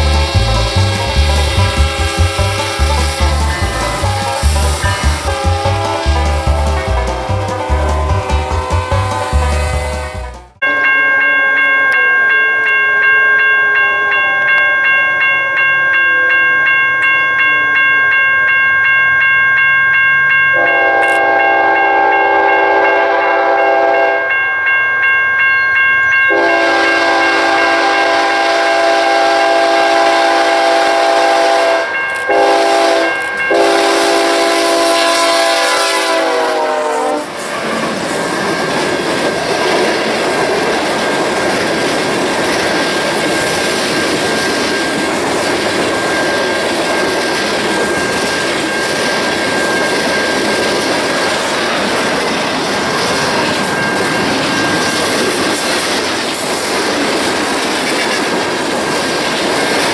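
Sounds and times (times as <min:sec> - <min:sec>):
locomotive air horn: 0:00.0 - 0:10.7, 0:20.6 - 0:24.3, 0:26.3 - 0:37.8
train cars rolling past: 0:00.0 - 0:11.0, 0:26.2 - 0:59.9.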